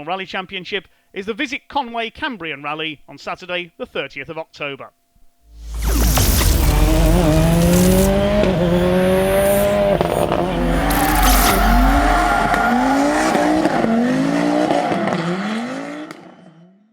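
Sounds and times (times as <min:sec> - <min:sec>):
rally car engine revving: 0:05.5 - 0:16.6.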